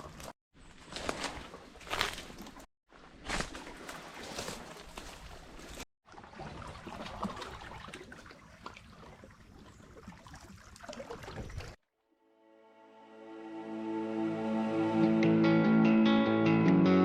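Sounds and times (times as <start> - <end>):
water sloshing and splashing: 0.0 - 11.8.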